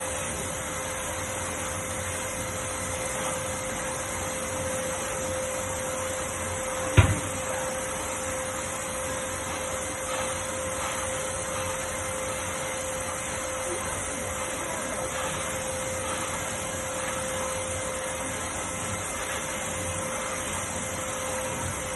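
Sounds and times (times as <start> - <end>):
industrial vacuum cleaner humming: 0.0 - 21.9
sharp knock: 7.0 - 7.4.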